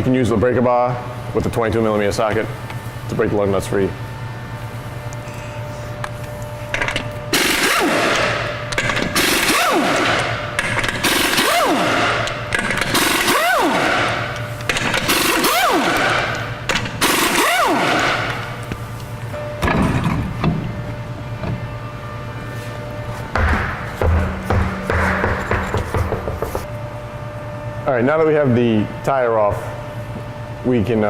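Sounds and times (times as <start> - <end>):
impact wrench rattling and whining: 6.7 - 18.7, 23.3 - 26.7.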